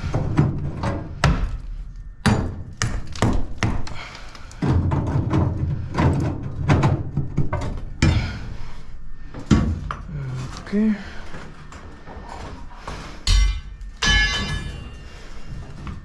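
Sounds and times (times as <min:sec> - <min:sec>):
construction knocks and thuds: 0:00.0 - 0:08.4.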